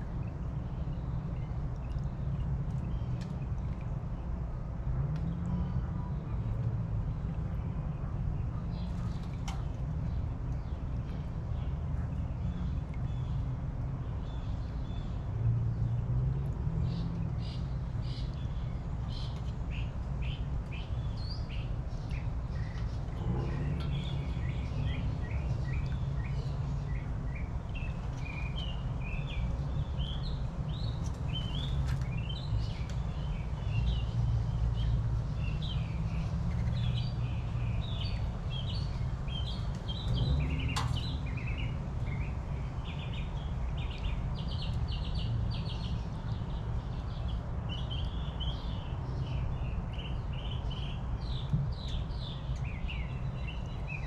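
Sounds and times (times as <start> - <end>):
small birds chirping: 16.9 - 54.0
steady low rumble: 20.2 - 44.2.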